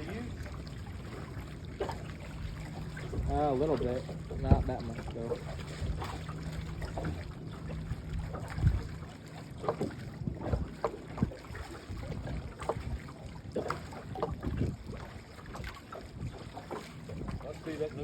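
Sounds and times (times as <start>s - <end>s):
low steady hum: 0.0s - 18.0s
water lapping against boat: 0.0s - 18.0s
wind on microphone: 2.4s - 7.2s, 7.9s - 9.0s, 10.0s - 13.2s, 14.1s - 18.0s.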